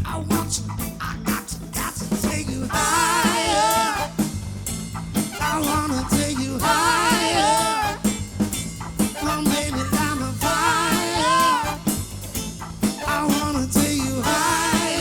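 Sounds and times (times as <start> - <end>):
bass and drum groove: 0.0 - 15.0
soul band with horn section: 0.0 - 15.0.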